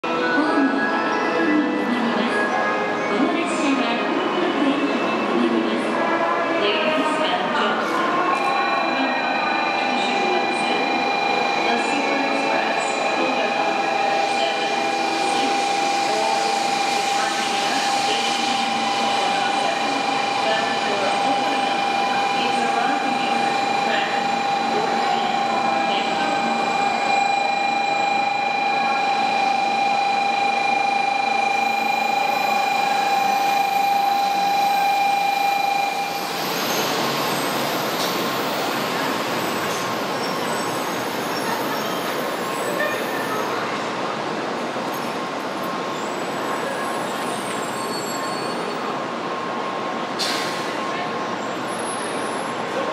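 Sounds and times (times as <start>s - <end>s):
train rushing past platform: 0.1s - 52.9s
steady high tone: 7.7s - 37.2s
train wheels on rail: 36.0s - 52.7s.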